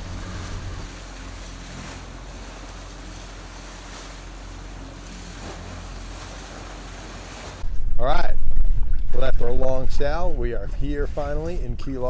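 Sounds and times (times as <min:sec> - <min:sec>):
water rushing past boat: 0:00.0 - 0:07.7
wind buffeting microphone: 0:00.0 - 0:11.7.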